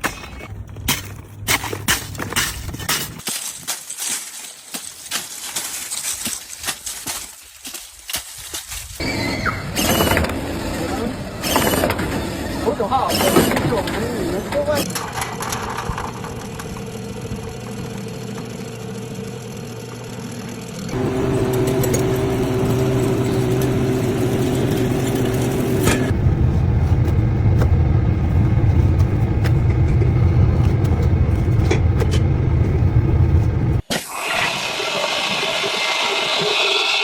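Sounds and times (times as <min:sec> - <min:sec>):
machine humming: 0:09.0 - 0:33.8.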